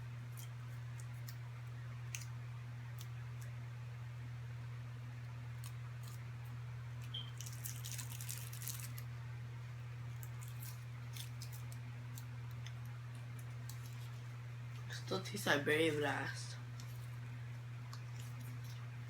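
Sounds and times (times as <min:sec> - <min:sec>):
steady low hum: 0:00.0 - 0:19.0
snack crackling in hands: 0:00.2 - 0:03.6, 0:05.5 - 0:09.1, 0:10.1 - 0:14.9, 0:16.7 - 0:19.0.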